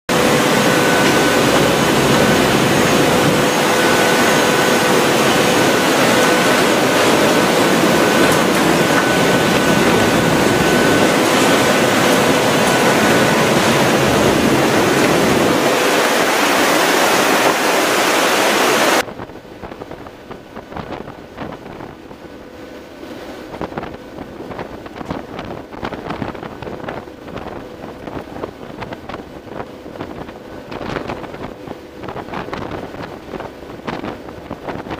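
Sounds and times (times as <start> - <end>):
rushing air: 0.1 - 19.0
steady tones: 0.1 - 19.0
wind buffeting microphone: 0.1 - 22.3, 23.0 - 34.9
turboprop engines droning: 0.1 - 34.9.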